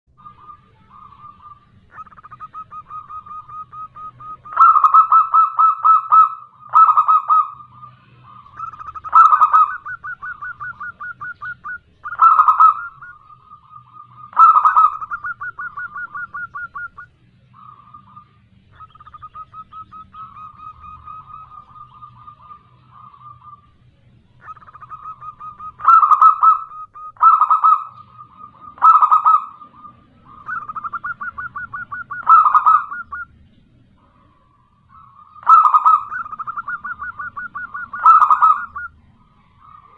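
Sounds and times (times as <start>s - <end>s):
dove cooing: 0.2s - 39.9s.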